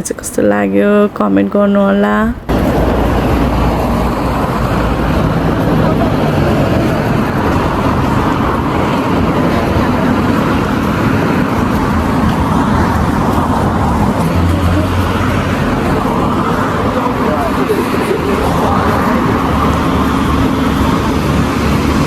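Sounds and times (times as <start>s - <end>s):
city road traffic: 0.0s - 22.0s.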